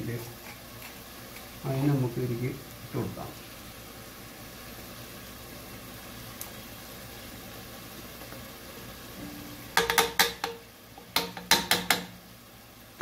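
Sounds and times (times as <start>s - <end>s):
food sizzling in a pot: 0.0s - 13.0s
spoon knocking and scraping pot: 9.7s - 12.2s.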